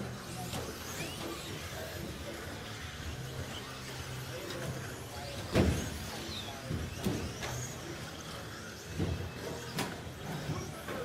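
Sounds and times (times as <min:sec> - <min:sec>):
rc truck motors whining: 0:00.0 - 0:11.0
tyres running over track: 0:00.0 - 0:11.0.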